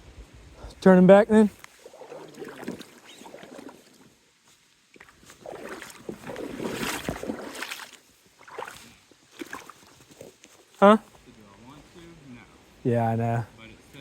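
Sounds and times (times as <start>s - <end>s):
water splashing against boat: 1.7s - 4.1s, 5.0s - 10.0s.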